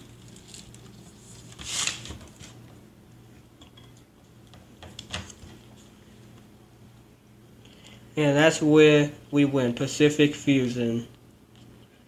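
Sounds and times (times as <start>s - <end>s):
paper rustling: 0.0s - 2.6s.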